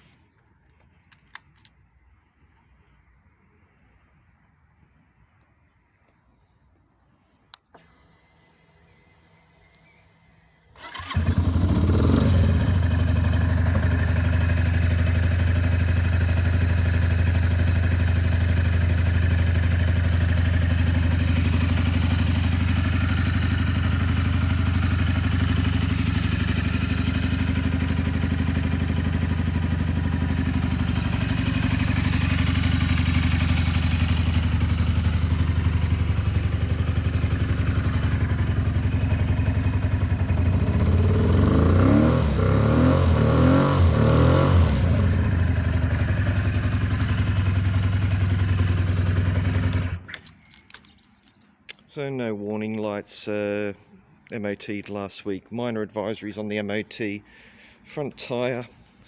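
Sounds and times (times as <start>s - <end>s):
motorcycle engine idling: 8.3s - 50.1s.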